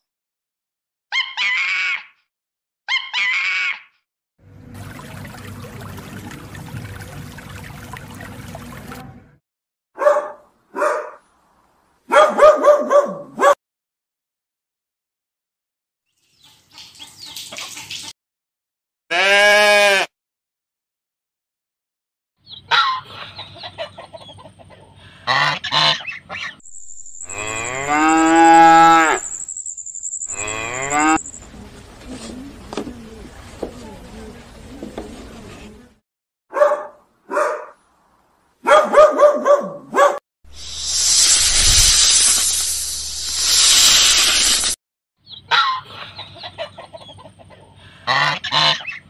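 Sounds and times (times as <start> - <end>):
dog yipping: 1.1 - 2.1, 2.9 - 3.9, 10.0 - 11.2, 12.1 - 13.6, 36.5 - 37.8, 38.6 - 40.2
water bubbling and rushing: 4.7 - 9.1
cow mooing: 19.1 - 20.1, 27.3 - 29.3, 30.3 - 31.2
waterfowl honking: 25.3 - 26.2, 48.1 - 49.0.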